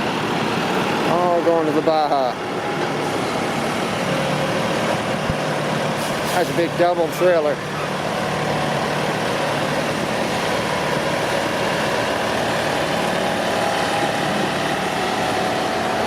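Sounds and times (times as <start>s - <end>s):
truck diesel engine idling: 0.0s - 16.0s.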